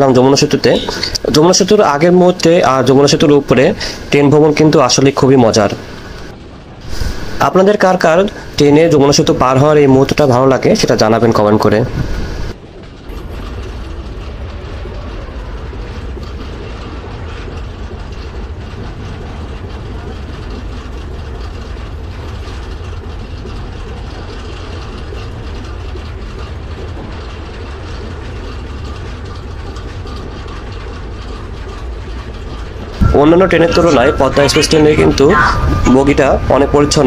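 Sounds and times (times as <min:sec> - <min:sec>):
fast train rattle: 0:00.0 - 0:37.0
train wheels rumbling on rails: 0:00.0 - 0:37.0.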